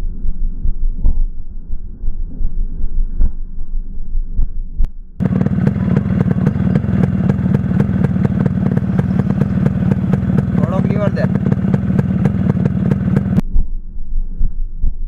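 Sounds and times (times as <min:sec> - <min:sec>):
muffled low thumping: 0:00.0 - 0:15.0
two-stroke engine running: 0:05.2 - 0:13.4.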